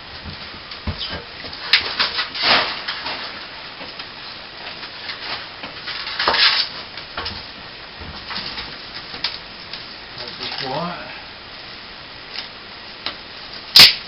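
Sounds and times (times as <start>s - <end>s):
ducting scraping and rustling: 0.3s - 10.7s.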